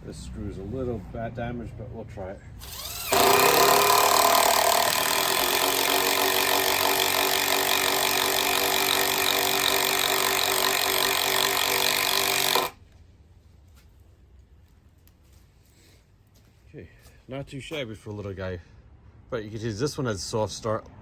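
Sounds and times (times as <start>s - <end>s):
impact driver rattling into wood: 2.6s - 12.8s.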